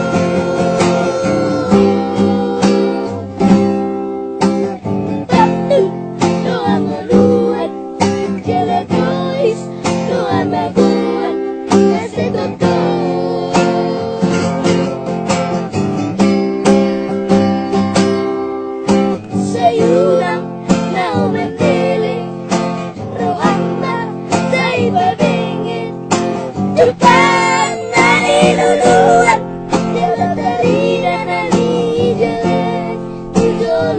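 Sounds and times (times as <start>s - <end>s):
child singing: 0.0s - 3.3s, 5.2s - 14.9s, 19.3s - 22.3s, 22.9s - 26.0s, 26.7s - 33.9s
acoustic guitar strumming: 0.0s - 33.9s.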